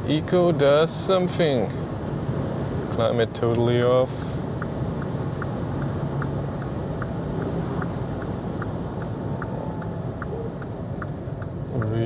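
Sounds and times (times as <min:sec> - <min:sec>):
road and tyre hum: 0:00.0 - 0:12.0
turn signal ticking: 0:04.5 - 0:12.0.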